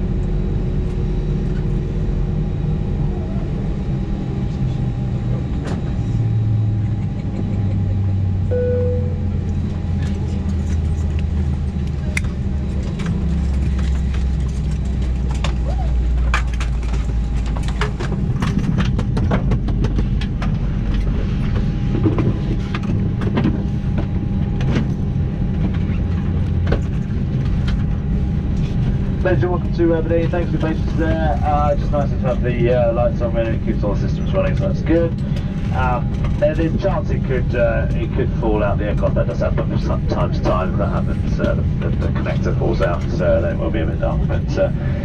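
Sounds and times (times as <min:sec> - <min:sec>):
jet engine low drone: 0:00.0 - 0:45.0
single chime: 0:08.5 - 0:09.2.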